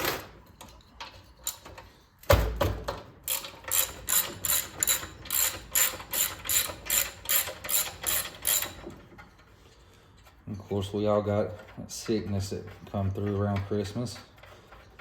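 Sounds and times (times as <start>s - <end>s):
ratchet wrench clicking: 3.2s - 8.8s.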